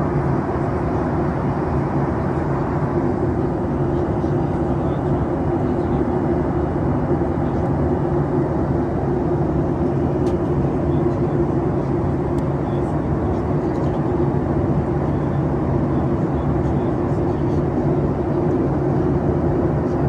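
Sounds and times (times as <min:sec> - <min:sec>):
airflow and engine drone: 0:00.0 - 0:20.0
constant low hum: 0:00.0 - 0:20.0.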